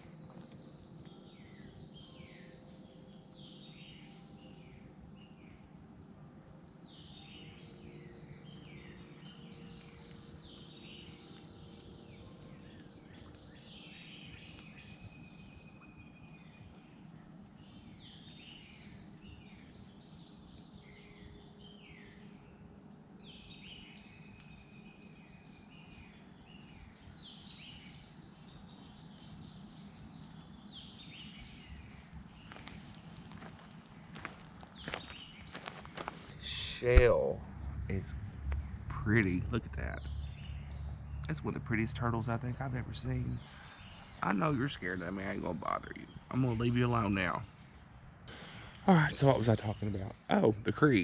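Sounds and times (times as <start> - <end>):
insect drone: 0.0 - 51.0
wild birds singing: 0.0 - 51.0
low outdoor rumble: 28.6 - 51.0.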